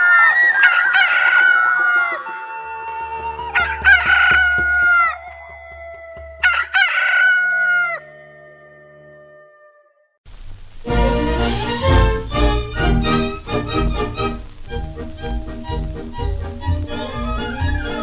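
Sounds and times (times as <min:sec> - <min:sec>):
rooster crowing: 0:00.0 - 0:08.4, 0:16.9 - 0:18.0
background music: 0:10.8 - 0:18.0.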